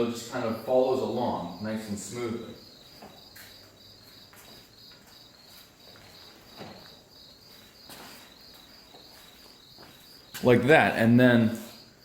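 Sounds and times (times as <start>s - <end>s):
crickets chirping: 0.0s - 12.0s
faint scuffs: 3.0s - 10.5s.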